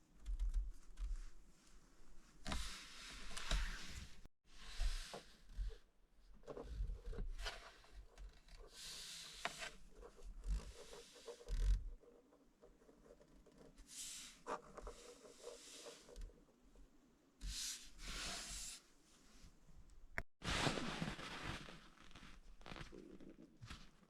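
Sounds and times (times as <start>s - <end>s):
rustling and scraping of packaging: 20.4s - 24.0s.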